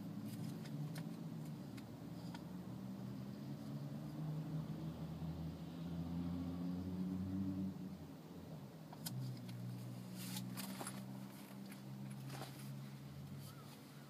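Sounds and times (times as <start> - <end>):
light clicks and rustles: 0.2 - 2.5, 8.9 - 14.0.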